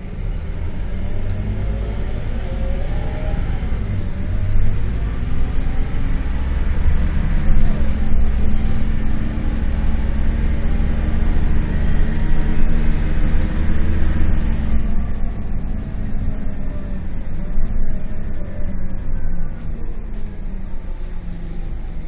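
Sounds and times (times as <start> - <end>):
bus diesel engine running: 0.0 - 22.0.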